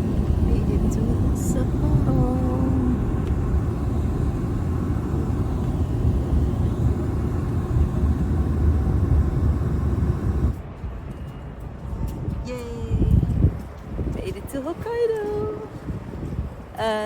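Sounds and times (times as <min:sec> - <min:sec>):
train rumbling on track: 0:00.0 - 0:10.8.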